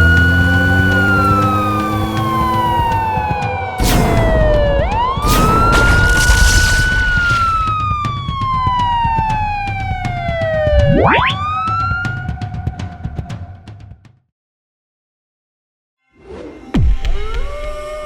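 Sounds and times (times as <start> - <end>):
siren wailing: 0.0 - 13.4
bursts of noise: 2.8 - 8.0.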